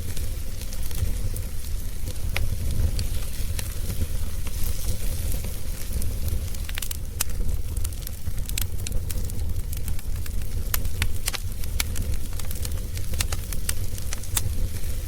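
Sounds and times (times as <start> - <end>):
logs crackling in fireplace: 0.0 - 15.0
low fire rumble: 0.0 - 15.0
sharp pops of burning wood: 0.0 - 15.0.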